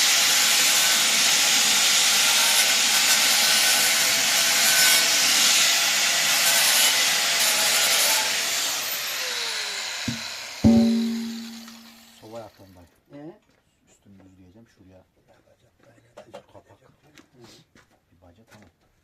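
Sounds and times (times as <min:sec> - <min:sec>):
angle grinder cutting metal: 0:00.0 - 0:12.0.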